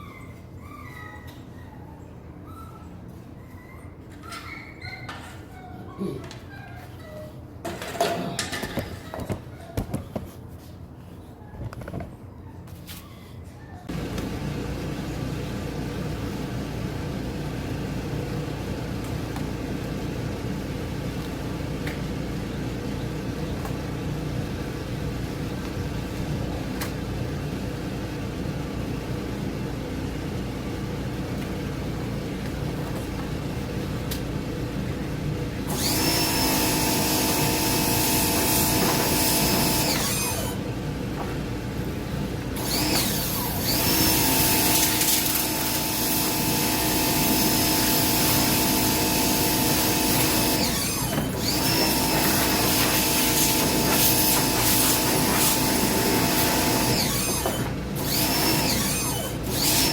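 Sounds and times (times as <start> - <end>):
power tool motor running: 35.7 - 40.6, 42.6 - 59.9.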